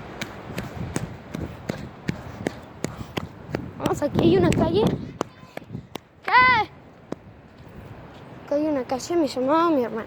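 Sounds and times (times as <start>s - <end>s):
quick footsteps on forest trail: 0.0s - 6.2s.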